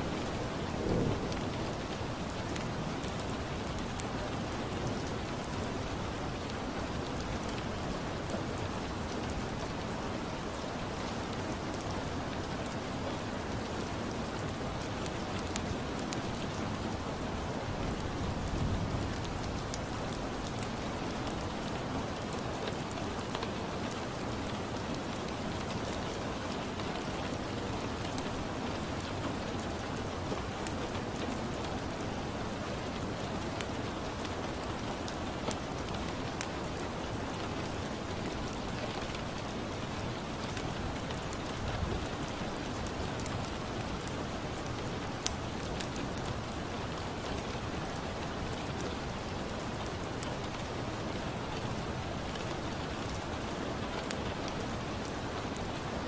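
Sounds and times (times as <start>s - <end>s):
steady rain: 0.0s - 56.0s
wood fire crackling: 29.6s - 55.8s.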